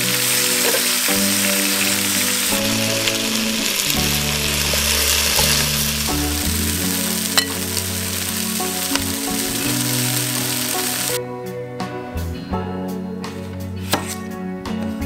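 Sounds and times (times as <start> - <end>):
chicken frying in oil: 0.0 - 11.2
background music: 0.0 - 15.0.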